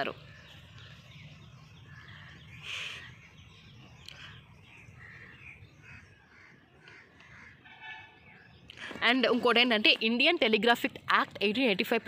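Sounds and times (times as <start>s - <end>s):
faint bird calls: 0.0s - 9.2s.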